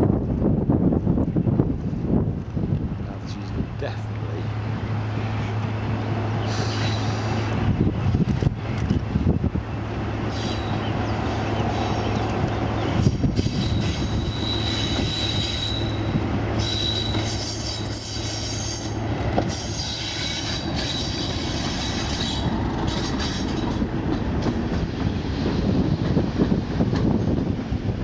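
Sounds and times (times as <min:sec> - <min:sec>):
train rumbling: 0:00.0 - 0:28.0
train wheels squealing: 0:06.4 - 0:07.6, 0:10.3 - 0:23.8.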